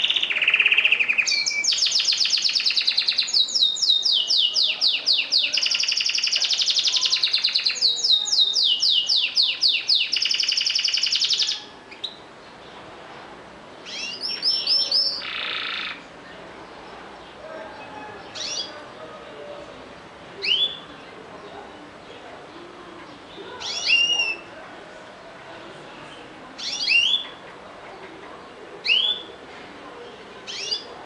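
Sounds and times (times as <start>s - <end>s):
canary singing: 0.0s - 12.3s, 13.8s - 16.2s, 17.2s - 19.1s, 20.4s - 21.6s, 22.6s - 24.6s, 26.1s - 28.2s, 28.8s - 29.4s, 30.1s - 31.0s.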